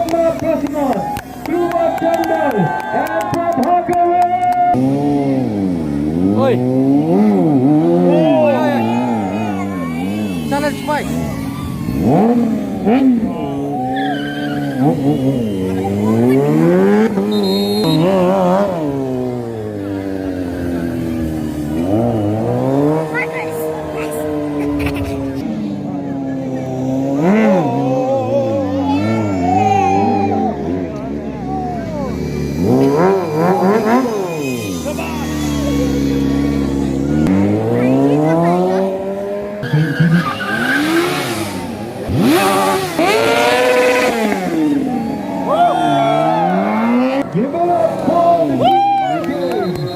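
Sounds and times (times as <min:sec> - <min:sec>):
car engine revving: 0:04.6 - 0:49.9
car engine revving hard: 0:04.8 - 0:13.6, 0:32.4 - 0:45.1
tyre squeal: 0:13.8 - 0:16.5, 0:39.6 - 0:41.4.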